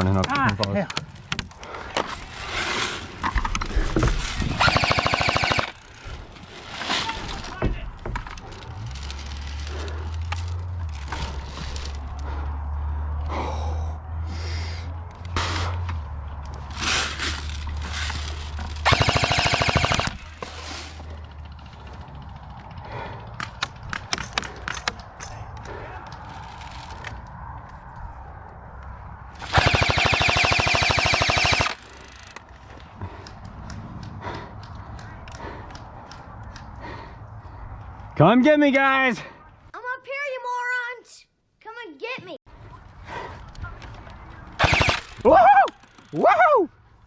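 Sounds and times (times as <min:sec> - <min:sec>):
airsoft rifle full-auto bursts: 0:04.6 - 0:06.0, 0:18.8 - 0:20.4, 0:29.4 - 0:32.3, 0:44.6 - 0:45.3
faint scattered airsoft shots: 0:44.6 - 0:45.2.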